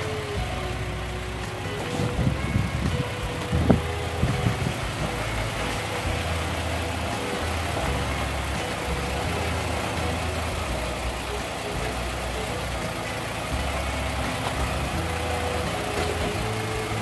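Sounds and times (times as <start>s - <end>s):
car engine idling: 0.0s - 17.0s
thumps: 0.0s - 17.0s.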